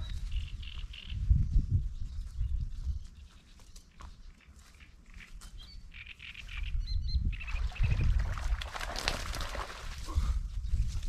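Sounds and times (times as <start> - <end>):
small birds chirping: 0.0 - 8.1.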